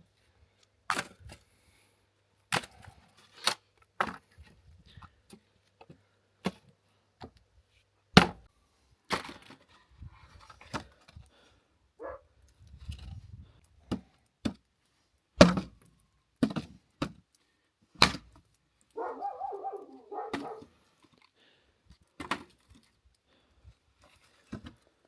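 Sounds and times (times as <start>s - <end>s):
wood being chopped: 8.1s - 8.4s, 15.4s - 15.8s, 18.0s - 18.4s, 20.2s - 20.6s.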